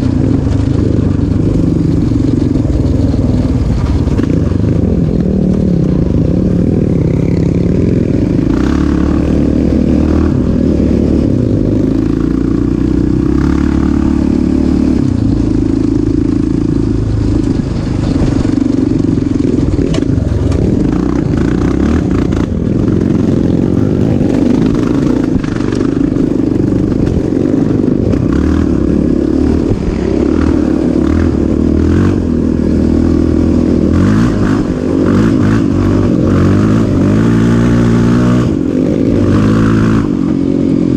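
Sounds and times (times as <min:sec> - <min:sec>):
off-road engine revving: 0:00.0 - 0:40.9.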